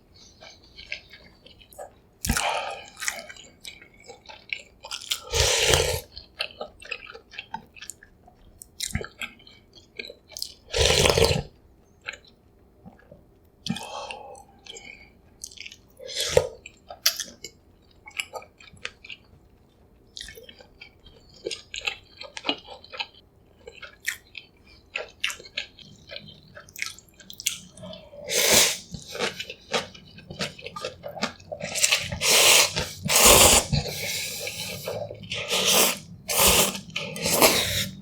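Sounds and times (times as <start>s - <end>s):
wet chewing and smacking: 0.2s - 11.4s, 12.0s - 28.1s, 28.8s - 38.0s
loud slurps: 28.3s - 29.3s, 31.7s - 38.0s.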